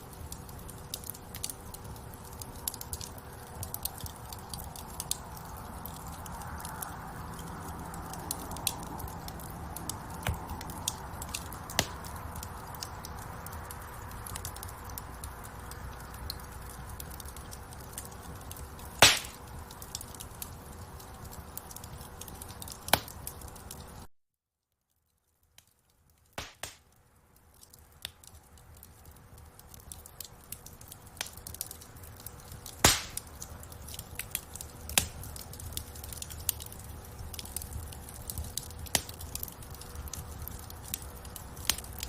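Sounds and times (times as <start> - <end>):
hiss of burning: 0.0 - 20.5, 32.2 - 33.5
wood fire crackling: 0.0 - 24.1, 24.9 - 42.0.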